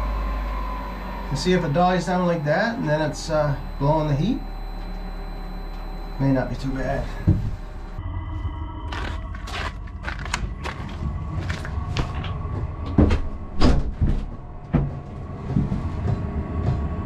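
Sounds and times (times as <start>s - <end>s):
air heater droning: 0.0s - 8.2s, 9.0s - 17.0s
knocks and rustles: 10.1s - 16.8s.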